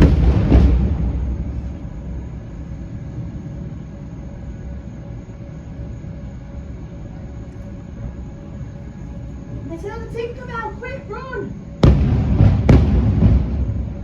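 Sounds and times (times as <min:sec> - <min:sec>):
firework burst booming: 0:00.0 - 0:03.3, 0:11.8 - 0:14.0
steady low rumble: 0:00.0 - 0:14.0.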